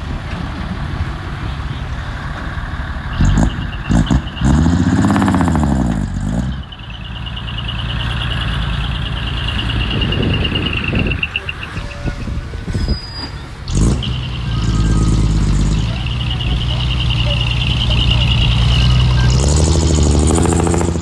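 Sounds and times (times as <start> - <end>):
heavy machine engine running: 0.0 - 21.0.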